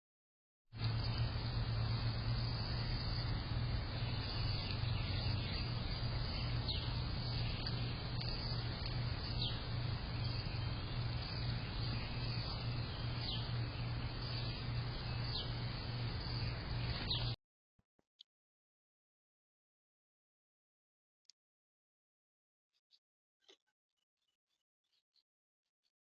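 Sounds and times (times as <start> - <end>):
low hum: 0.8 - 17.4
steady hiss: 0.8 - 17.4.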